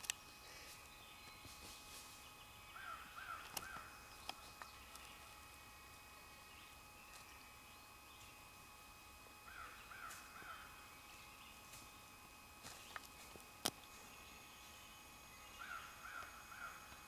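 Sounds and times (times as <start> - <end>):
bird calls: 0.0 - 5.4, 9.4 - 11.8, 13.9 - 17.0.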